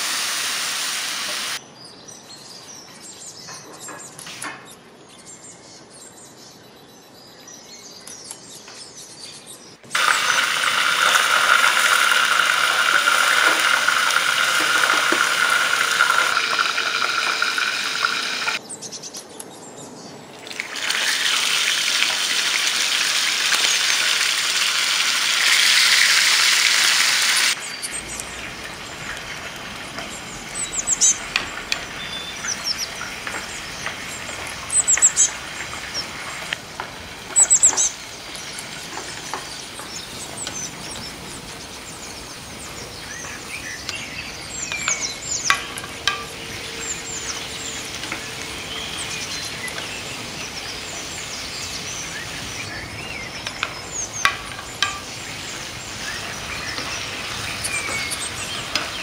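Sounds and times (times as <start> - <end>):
steady hiss: 0.0 - 1.6, 9.9 - 18.6, 20.8 - 59.0
birds chirping: 1.3 - 20.6, 21.8 - 59.0.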